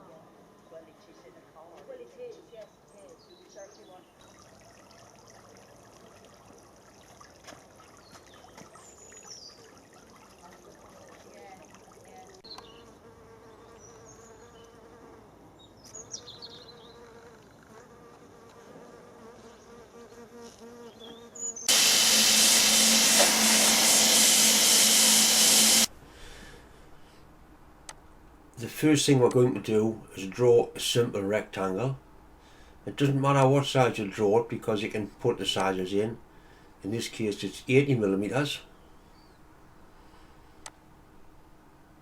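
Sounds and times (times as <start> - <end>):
loud buzz with hum and hiss: 21.7 - 26.0.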